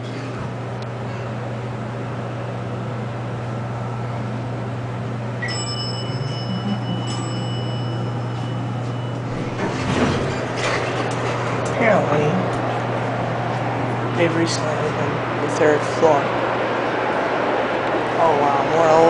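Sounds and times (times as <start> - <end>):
elevator humming: 0.0 - 19.0
elevator rumbling: 0.0 - 19.0
bell-like chime: 5.4 - 9.2.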